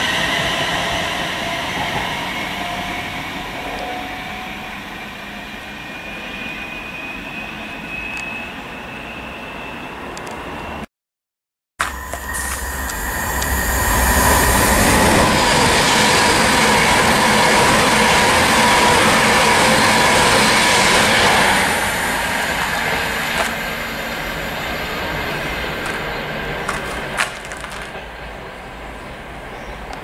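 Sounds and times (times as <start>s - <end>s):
train passing at speed: 0.0s - 10.9s, 11.8s - 30.0s
high whine: 11.8s - 15.5s.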